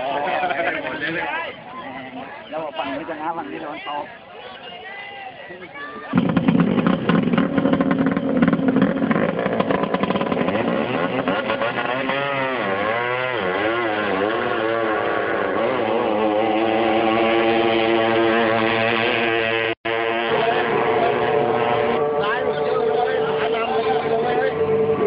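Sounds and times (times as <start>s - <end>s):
boat engine revving: 6.1s - 25.0s.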